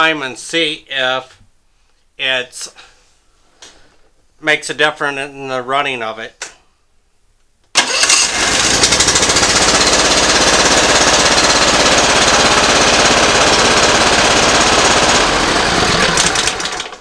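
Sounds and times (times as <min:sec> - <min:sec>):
mower engine running rough: 0:07.8 - 0:17.0.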